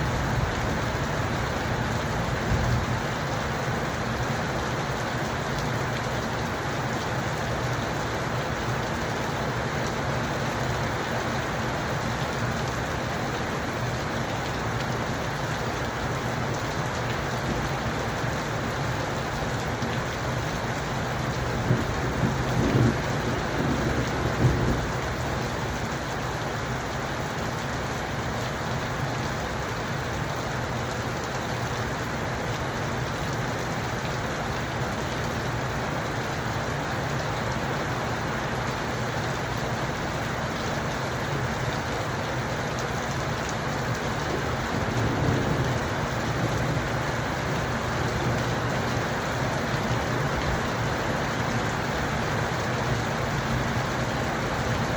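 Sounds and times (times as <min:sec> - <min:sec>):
steady rain falling: 0:00.0 - 0:54.9
thunder rumbling: 0:21.4 - 0:25.2, 0:44.2 - 0:48.1.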